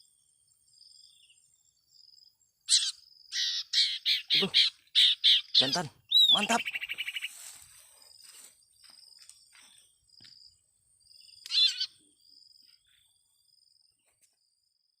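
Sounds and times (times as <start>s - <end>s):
small bird chirps: 0.0s - 15.0s
harsh bird call: 2.7s - 7.4s, 11.5s - 12.0s.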